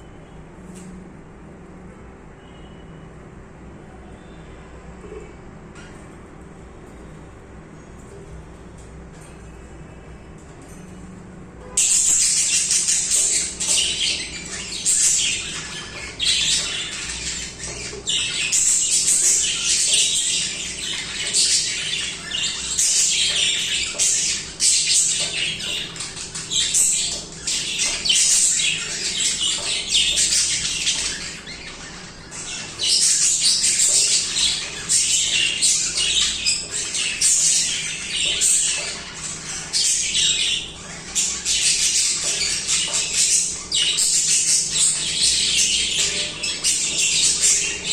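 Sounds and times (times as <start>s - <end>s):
budgerigars chattering: 11.8s - 47.9s.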